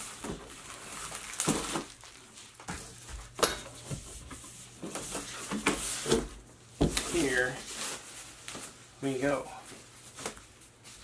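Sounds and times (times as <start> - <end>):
packaging rustling and crinkling: 0.0 - 3.4, 4.8 - 8.8.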